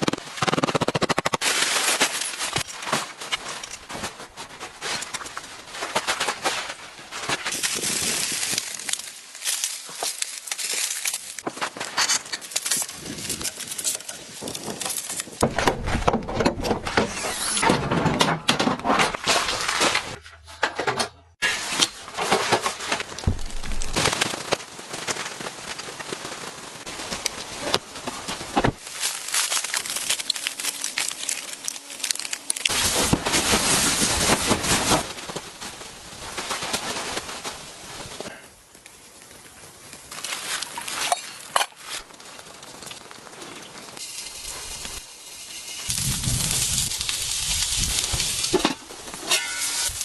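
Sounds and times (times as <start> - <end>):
wind-driven snow pelting: 7.5 - 9.6, 43.8 - 49.1.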